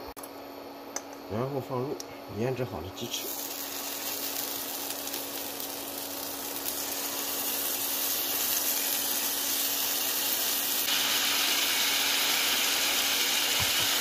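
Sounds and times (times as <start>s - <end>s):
chicken sizzling in hot oil: 3.1s - 14.0s.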